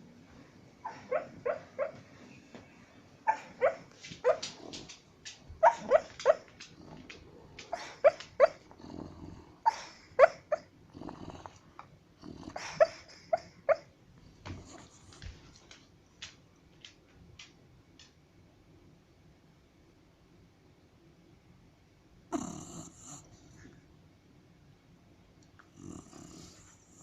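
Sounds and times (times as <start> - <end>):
dog yipping in its sleep: 0.8 - 2.0, 3.3 - 4.5, 5.6 - 6.5, 7.7 - 8.6, 9.7 - 10.7, 12.6 - 13.9
dog snoring breaths: 6.6 - 13.5, 14.3 - 15.4, 22.3 - 23.8, 25.7 - 27.0.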